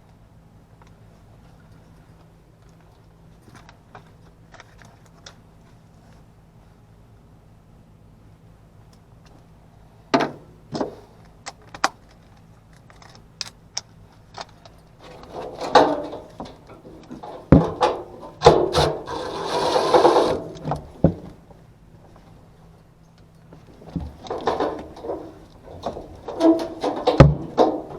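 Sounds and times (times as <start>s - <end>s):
rubbing scrape: 18.6s - 20.6s.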